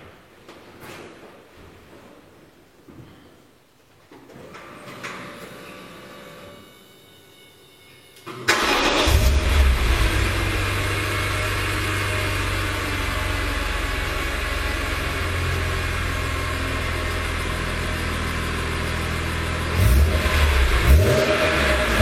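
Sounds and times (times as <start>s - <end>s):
engine humming: 8.5s - 22.0s.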